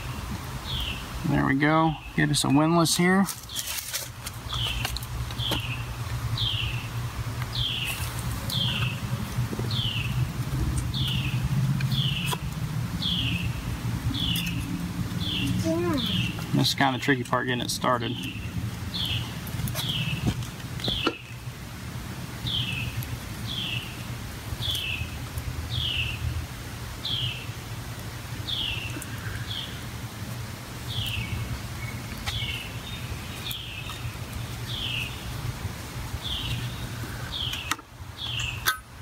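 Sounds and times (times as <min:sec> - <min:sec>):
bird chirping: 0:00.0 - 0:01.1, 0:04.5 - 0:10.2, 0:10.8 - 0:12.4, 0:13.0 - 0:21.4, 0:22.5 - 0:24.0, 0:30.9 - 0:35.3, 0:36.2 - 0:38.7.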